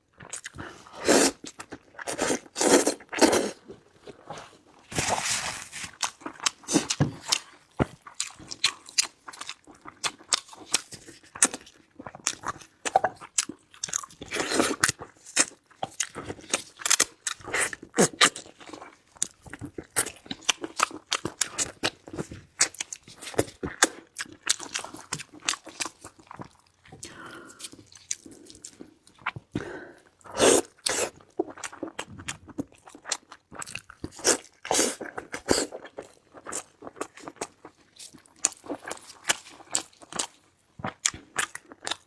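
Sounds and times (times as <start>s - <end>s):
person chewing crunchy food: 0.1s - 42.0s.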